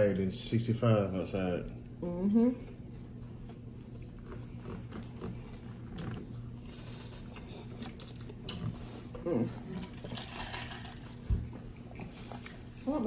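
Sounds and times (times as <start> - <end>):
people chewing and mouth smacks: 2.7 - 12.9.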